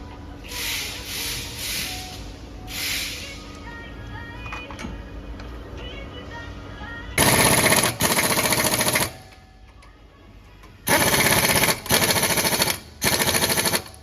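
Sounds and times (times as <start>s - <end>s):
impact wrench hammering: 7.2s - 9.4s, 10.9s - 14.0s.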